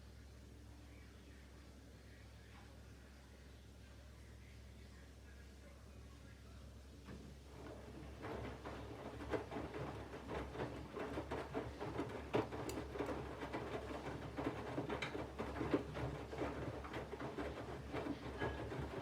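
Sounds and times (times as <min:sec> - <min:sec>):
laundry tumbling in washing machine: 0:07.0 - 0:19.0
washing machine motor hum: 0:07.1 - 0:19.0.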